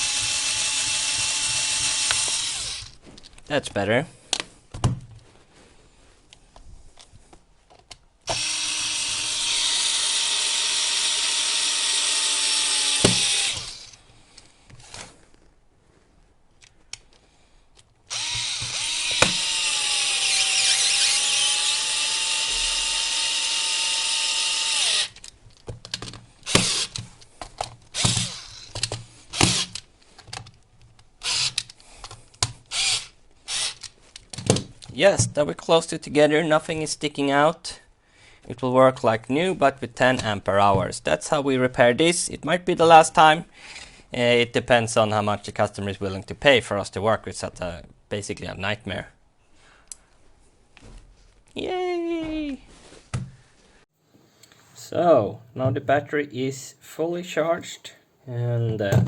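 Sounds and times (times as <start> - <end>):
electric screwdriver driving screws: 0.0 - 3.0, 8.3 - 14.0, 18.1 - 25.3, 26.4 - 27.1, 27.9 - 29.9, 31.2 - 31.8, 32.6 - 34.0.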